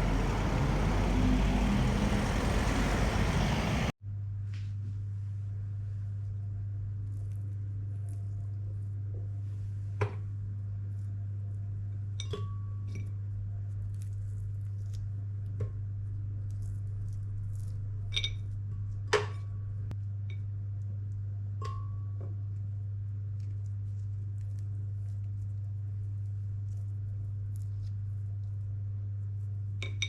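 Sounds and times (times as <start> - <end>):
steady low hum: 0.0 - 3.9.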